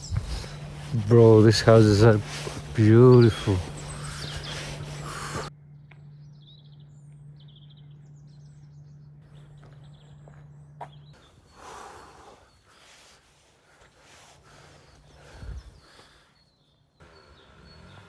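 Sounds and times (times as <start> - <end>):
broad rushing noise: 0.0 - 5.5
songbirds chirping: 0.0 - 18.0.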